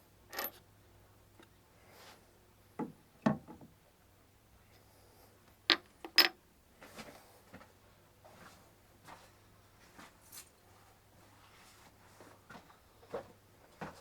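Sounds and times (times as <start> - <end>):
metal parts clinking and knocking: 0.3 - 0.6, 5.7 - 6.4.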